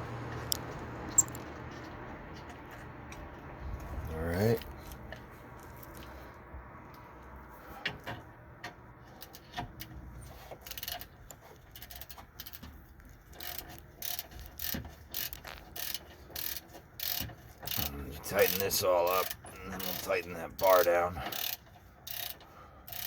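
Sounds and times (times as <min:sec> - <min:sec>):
ratchet wrench clicking: 0:01.1 - 0:01.4, 0:10.5 - 0:23.0.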